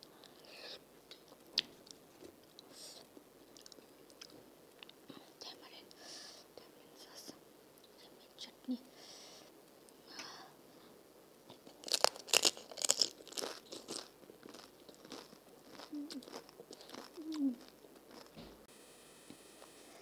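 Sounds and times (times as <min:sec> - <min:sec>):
moist chewing: 0:01.1 - 0:05.0, 0:11.5 - 0:18.4
crisp shell crunching in mouth: 0:11.5 - 0:18.4.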